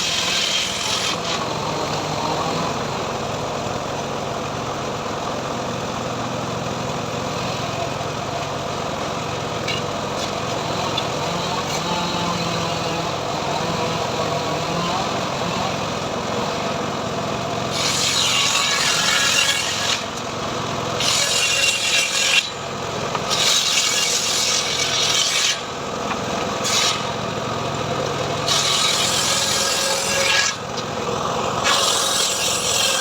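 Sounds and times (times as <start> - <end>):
hand saw rasping through wood: 0.0 - 2.7, 9.7 - 33.0.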